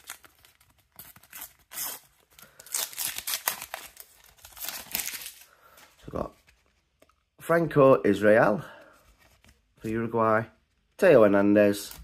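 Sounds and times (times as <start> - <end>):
paper packet tearing: 0.0 - 5.4
wrapper crinkling: 0.0 - 5.5.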